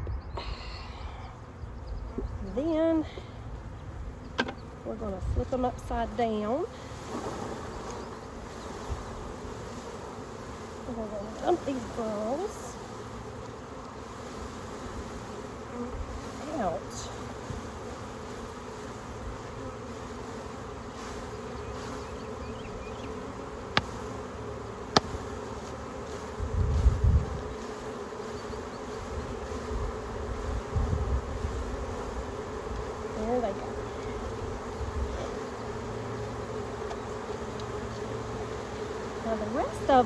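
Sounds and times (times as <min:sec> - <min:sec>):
honeybees buzzing: 0:00.0 - 0:40.0
low thumps: 0:01.4 - 0:06.0.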